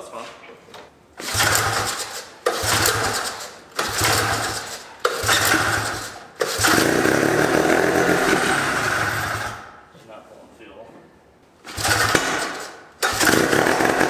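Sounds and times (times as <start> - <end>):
engine cranked by pull-starter: 1.2 - 9.7, 11.6 - 14.0.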